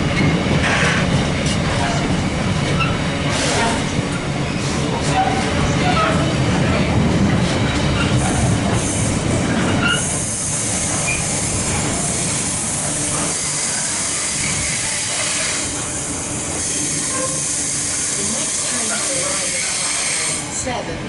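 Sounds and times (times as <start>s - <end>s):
freight train wheels rumbling: 0.0s - 21.0s
high wheel squeals: 9.6s - 11.5s.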